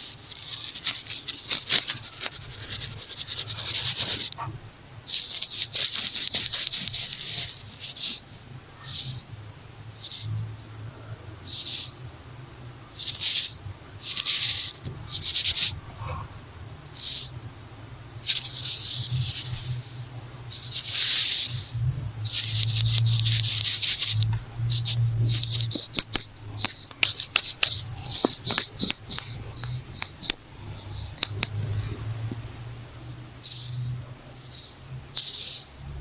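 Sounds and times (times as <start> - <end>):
scratchy brush strokes: 0.0 - 4.5, 5.1 - 9.3, 10.0 - 10.6, 13.0 - 16.2, 18.2 - 32.4, 33.0 - 35.8
makeup brush swishing: 0.4 - 4.5, 20.5 - 31.8
sharp clicks: 22.3 - 32.4.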